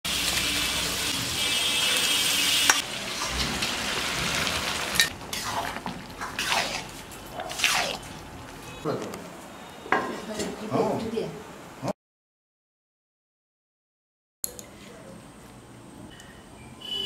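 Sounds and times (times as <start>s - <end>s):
food sizzling in a pan: 0.1s - 6.9s.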